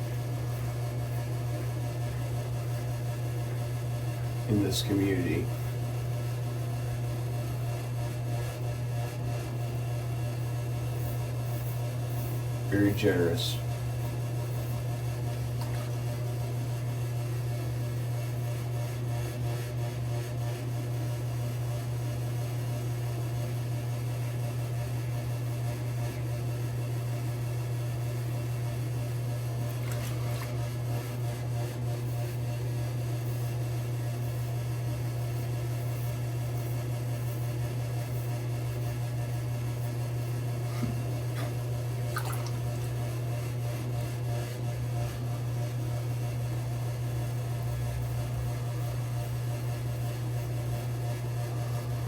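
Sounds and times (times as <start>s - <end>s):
steady low hum: 0.0s - 17.8s, 28.2s - 52.0s.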